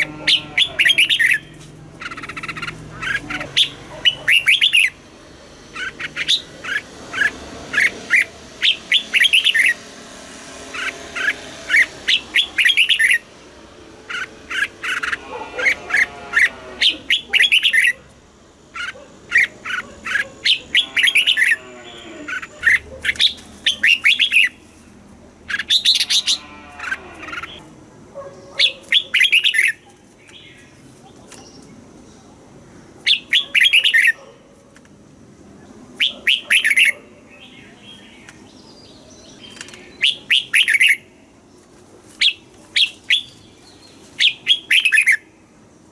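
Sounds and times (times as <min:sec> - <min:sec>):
lower sliding bird calls: 0:05.7 - 0:13.3, 0:42.2 - 0:45.3
bird singing whistled notes: 0:39.2 - 0:41.0.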